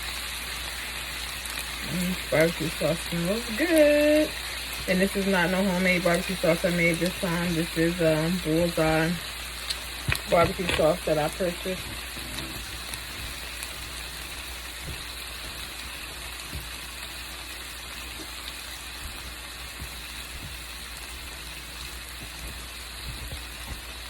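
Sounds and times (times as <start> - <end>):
meat sizzling on a grill: 0.0 - 24.0.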